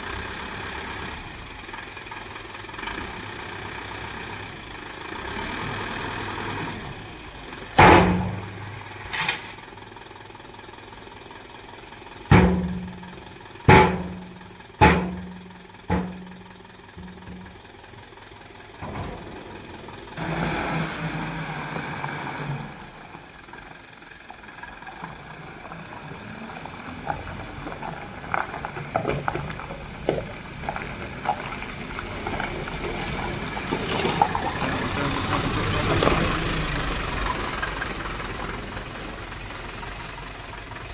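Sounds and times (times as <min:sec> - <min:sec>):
heavy diesel engine running: 0:00.0 - 0:40.9
rattling: 0:11.9 - 0:40.9
loud ringing bangs: 0:12.3 - 0:17.6.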